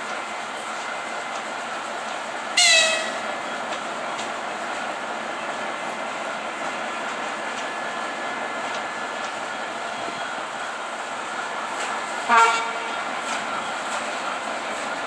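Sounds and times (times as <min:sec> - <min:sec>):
train rolling: 0:00.0 - 0:15.0
train horn toot: 0:02.6 - 0:03.4, 0:12.2 - 0:13.1.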